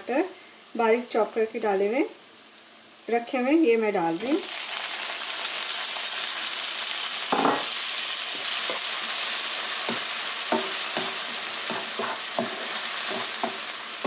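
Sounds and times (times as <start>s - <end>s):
vegetables sizzling in hot oil: 0.0s - 14.0s
wooden spatula knocking on pan: 9.9s - 13.6s.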